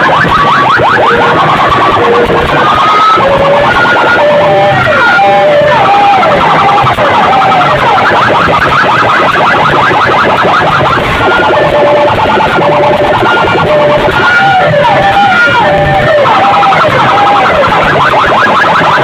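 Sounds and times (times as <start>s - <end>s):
siren falling tones: 0.0s - 19.0s.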